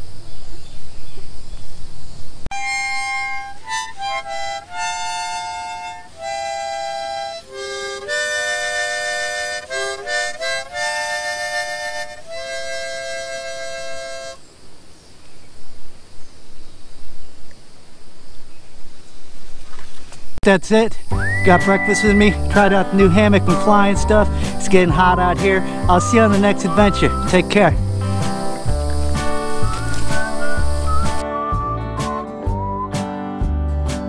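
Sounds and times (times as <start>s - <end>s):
harmonica playing slow tune: 2.5s - 14.4s, 21.1s - 33.4s.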